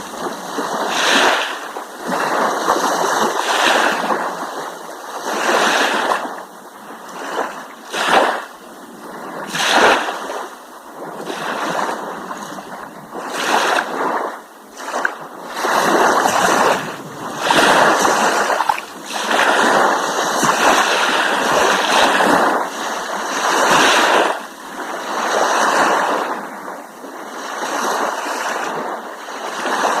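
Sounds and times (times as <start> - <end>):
sharp wave splashes: 0.0 - 4.4, 11.3 - 26.4
sea waves washing against rocks: 0.0 - 6.4, 9.2 - 30.0.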